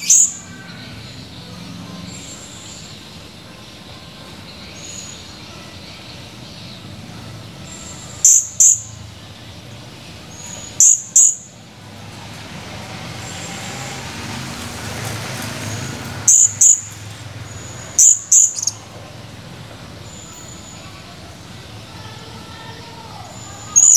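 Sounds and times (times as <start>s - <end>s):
parrot high chirps: 0.0s - 0.5s, 8.2s - 8.9s, 10.4s - 11.5s, 16.2s - 16.9s, 17.6s - 18.8s, 23.7s - 23.9s.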